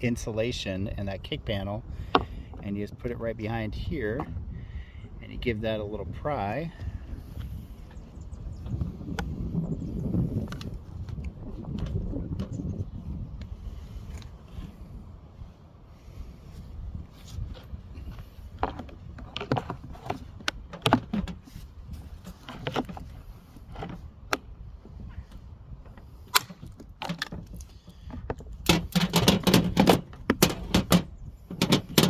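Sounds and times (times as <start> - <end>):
clatter of pry bar on plastic: 26.3 - 32.0.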